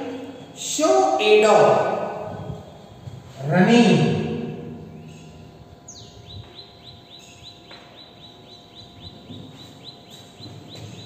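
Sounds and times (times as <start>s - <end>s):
bird calling: 4.6s - 11.0s.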